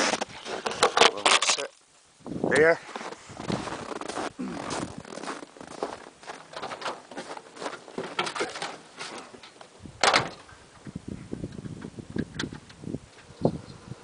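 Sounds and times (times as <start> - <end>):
clicks and rustling in cab: 6.5 - 10.5
truck door slamming: 10.0 - 10.5.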